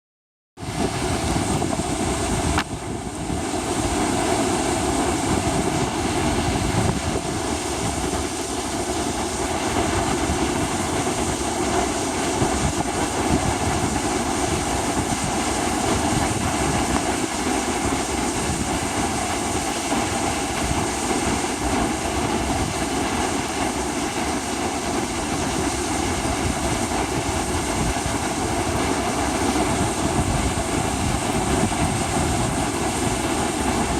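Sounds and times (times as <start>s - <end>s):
heavy surf: 0.6s - 33.9s
storm wind buffeting microphone: 0.6s - 33.9s.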